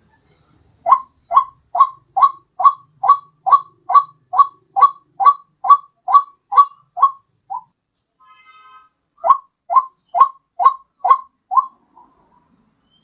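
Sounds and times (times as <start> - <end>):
waterhen kwak calls: 0.8 - 7.7, 9.2 - 12.2.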